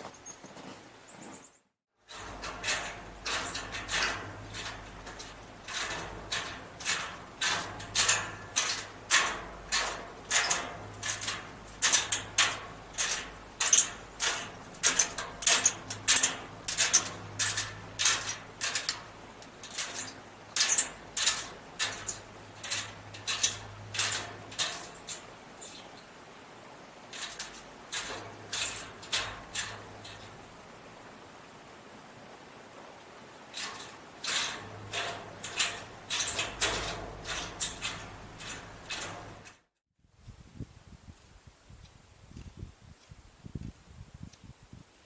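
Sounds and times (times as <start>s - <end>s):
footsteps crunching in snow: 0.0s - 1.6s.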